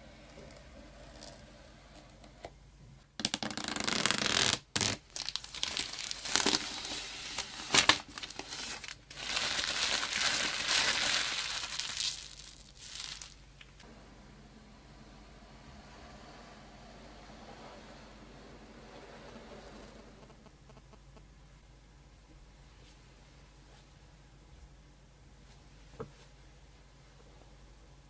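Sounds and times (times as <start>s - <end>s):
packaging crinkling and tearing: 3.9s - 13.8s.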